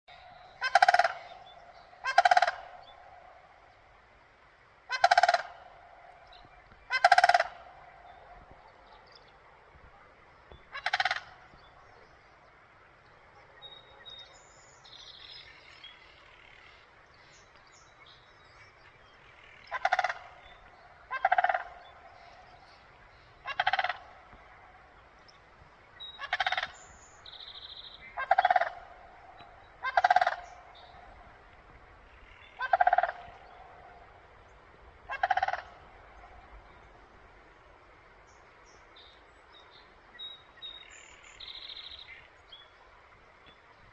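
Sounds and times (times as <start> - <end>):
crane calling: 0.1 - 4.1, 4.8 - 9.5, 10.6 - 11.8, 19.3 - 37.0.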